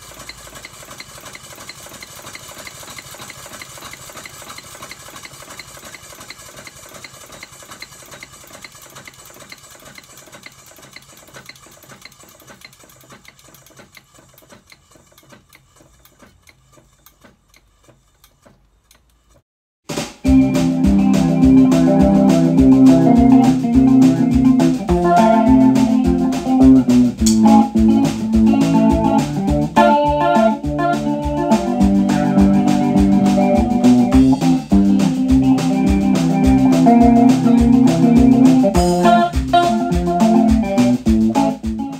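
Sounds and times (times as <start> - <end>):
model steam locomotive beat: 0.0 - 12.4, 20.2 - 41.9
loud organ and drum music: 19.8 - 41.9.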